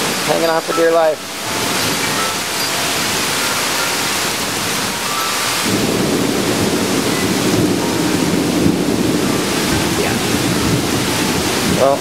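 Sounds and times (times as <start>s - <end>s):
heavy rain pouring: 0.0s - 12.0s
deep thunder rumble: 5.6s - 12.0s.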